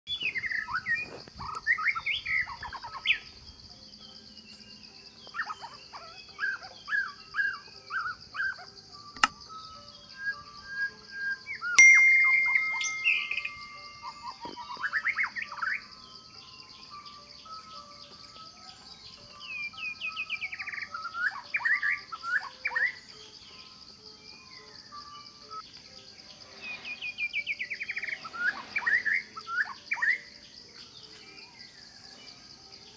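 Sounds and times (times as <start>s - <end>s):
birds chirping: 0.1s - 32.9s
high-pitched insect drone: 0.4s - 32.9s
high-pitched hiss: 11.4s - 16.0s
sharp sweeping bird calls: 26.6s - 30.3s.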